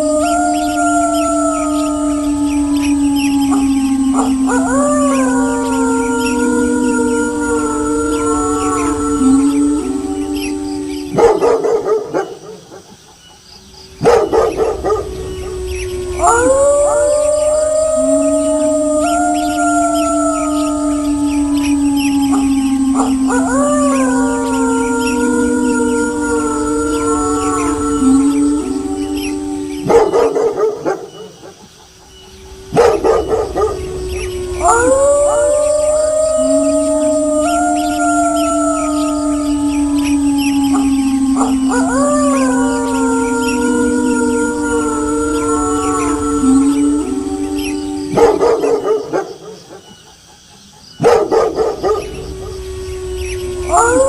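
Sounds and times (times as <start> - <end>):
wolves barking and yipping: 0.0 - 28.4, 29.2 - 46.8, 47.5 - 54.0
wolves howling: 0.0 - 54.0
dog barking: 11.2 - 12.9, 14.0 - 15.0, 51.0 - 52.1.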